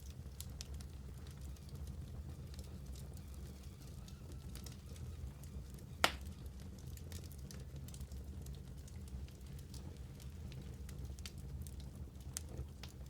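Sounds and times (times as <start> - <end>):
wood fire crackling: 0.0 - 13.0
loud pop from fire: 6.0 - 6.3.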